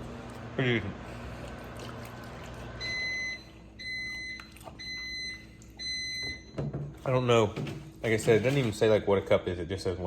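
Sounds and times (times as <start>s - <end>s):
microwave oven humming: 0.0s - 10.0s
microwave oven beeping: 2.2s - 7.6s.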